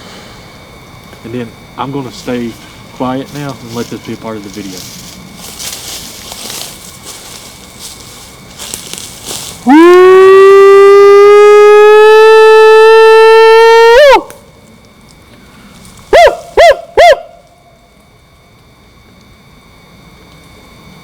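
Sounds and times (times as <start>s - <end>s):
man howling: 9.7s - 14.3s
rising and falling whoop: 9.7s - 14.3s.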